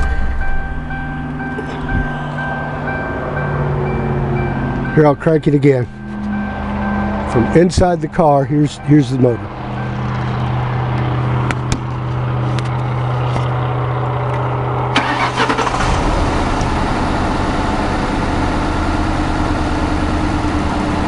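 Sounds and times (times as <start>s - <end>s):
steady low hum: 0.0s - 15.0s
car engine starting and idling: 0.0s - 21.0s.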